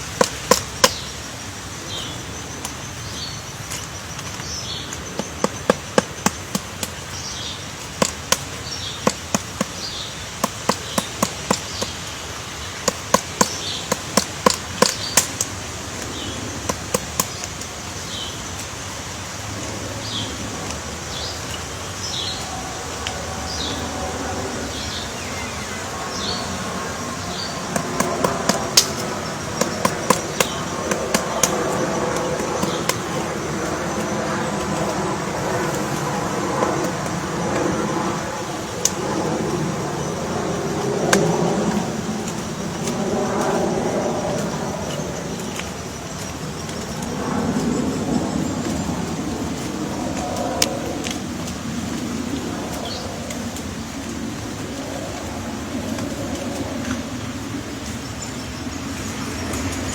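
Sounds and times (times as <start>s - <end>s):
sharp clicking taps: 0.0s - 1.1s, 3.7s - 17.7s, 27.0s - 36.1s
low drone: 13.6s - 59.9s.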